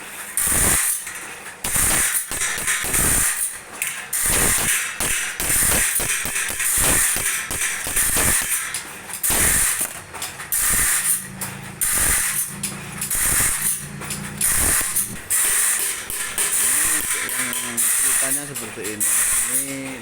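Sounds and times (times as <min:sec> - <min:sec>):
saw machine ratcheting clatter: 0:00.0 - 0:20.0
hiss: 0:01.7 - 0:03.4, 0:04.2 - 0:08.6, 0:09.3 - 0:09.9, 0:10.6 - 0:11.2, 0:11.8 - 0:12.3, 0:13.1 - 0:13.7.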